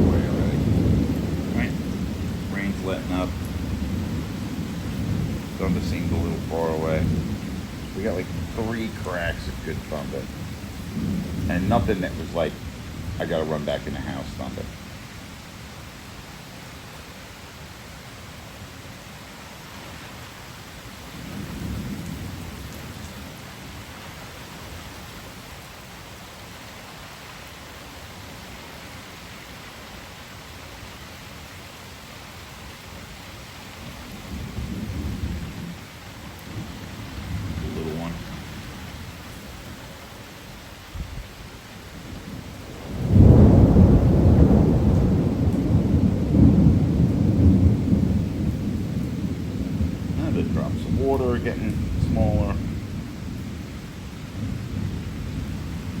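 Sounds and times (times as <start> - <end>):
thunder rolling: 0.0 - 14.9, 34.0 - 39.0, 42.0 - 53.7
steady rain: 0.0 - 56.0.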